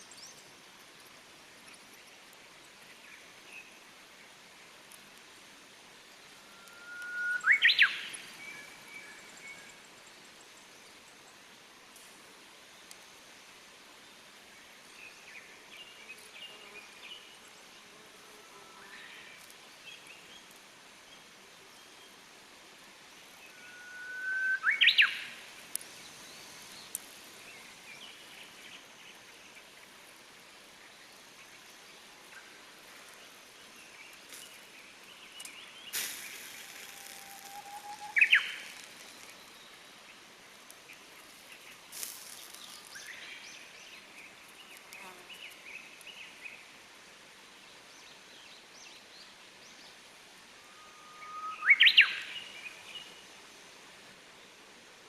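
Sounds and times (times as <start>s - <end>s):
faint steady hiss: 0.0s - 55.0s
songbirds chirping: 0.0s - 55.0s
rising bird whistle: 6.6s - 8.0s, 23.6s - 25.2s, 36.7s - 38.7s, 50.7s - 52.2s
small birds chirping: 30.9s - 46.7s
short crackle: 35.9s - 39.5s, 41.9s - 43.1s.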